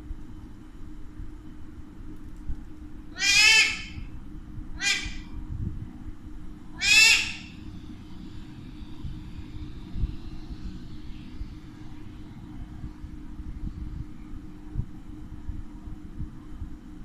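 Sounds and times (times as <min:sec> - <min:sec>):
parakeet harsh calls: 0:03.1 - 0:04.1, 0:04.8 - 0:05.3, 0:06.8 - 0:07.6.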